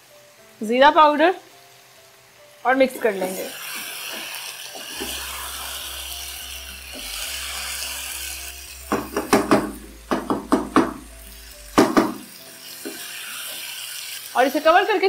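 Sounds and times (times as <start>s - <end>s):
food sizzling in a pan: 0.0s - 15.0s
spoon knocking on pan: 8.9s - 11.1s, 11.8s - 13.6s.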